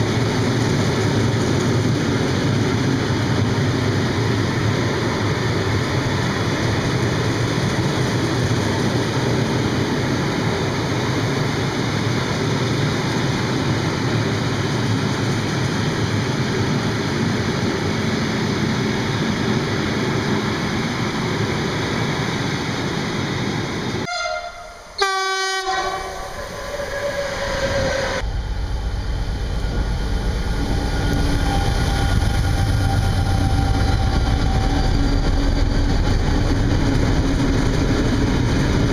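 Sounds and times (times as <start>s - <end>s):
freight train wagons rumbling: 0.0s - 38.9s
train horn blowing: 24.0s - 28.2s.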